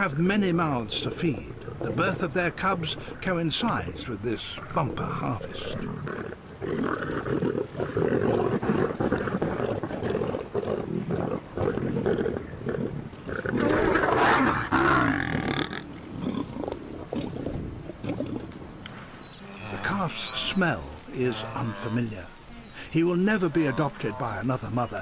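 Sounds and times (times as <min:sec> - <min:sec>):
lions growling: 0:00.0 - 0:18.6.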